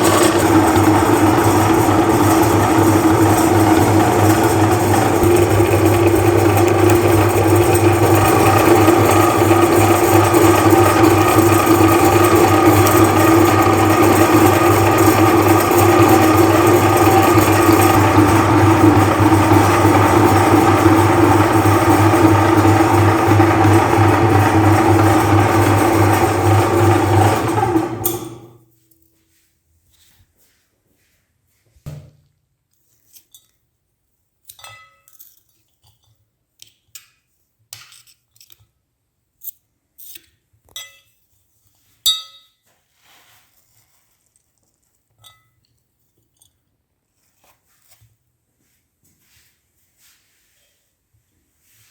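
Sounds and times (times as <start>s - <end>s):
electric meat grinder running: 0.0s - 28.6s.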